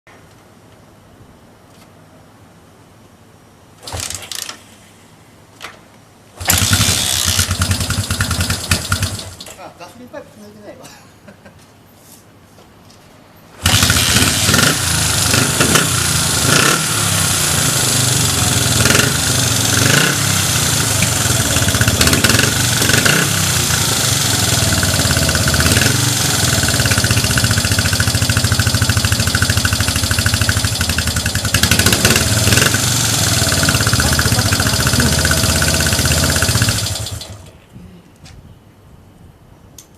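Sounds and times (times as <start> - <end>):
motorcycle kick starter: 3.8 - 4.6, 6.4 - 9.6, 13.6 - 15.8
motorcycle engine running: 6.4 - 9.4, 13.6 - 37.5.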